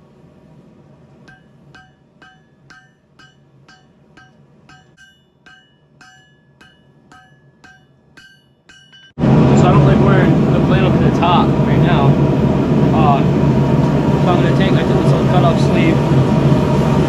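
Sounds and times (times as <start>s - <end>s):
hammer striking metal on anvil: 1.2s - 9.2s.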